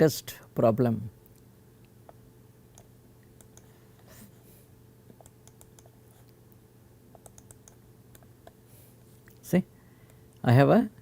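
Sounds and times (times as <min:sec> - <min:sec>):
low electrical hum: 0:00.0 - 0:11.0
computer mouse clicks: 0:02.1 - 0:03.7, 0:05.1 - 0:06.4, 0:07.1 - 0:08.6.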